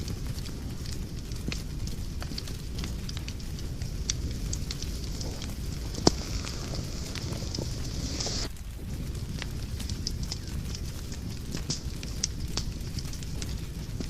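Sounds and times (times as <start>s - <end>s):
wood fire crackling: 0.0s - 14.0s
loud fire pop: 1.5s - 8.5s.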